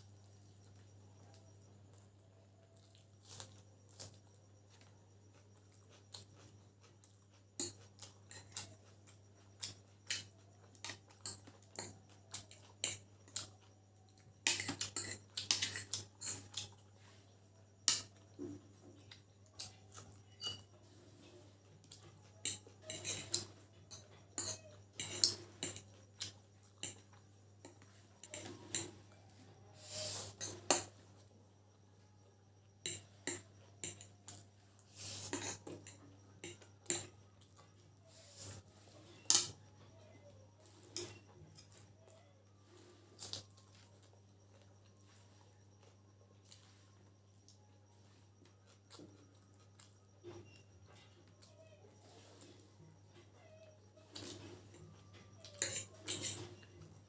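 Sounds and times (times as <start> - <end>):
cutlery clinking on a plate: 14.4 - 16.8, 20.1 - 20.8, 22.0 - 29.0, 32.8 - 34.4, 35.1 - 37.2, 54.1 - 56.9.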